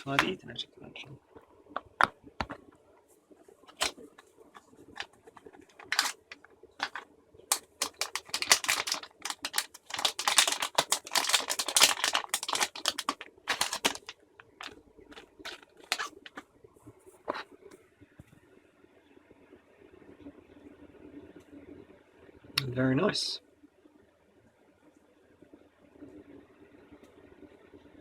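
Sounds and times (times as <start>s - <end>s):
packaging clicks and taps: 0.0s - 0.3s, 1.8s - 2.6s, 3.7s - 4.2s, 4.9s - 16.4s
packaging crinkling: 0.0s - 0.3s, 3.7s - 16.4s.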